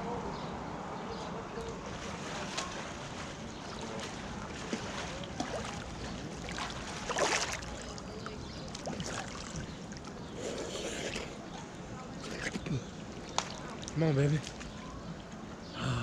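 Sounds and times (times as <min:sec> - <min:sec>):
pool water sloshing and lapping: 0:01.1 - 0:15.8
water splash: 0:02.0 - 0:08.0.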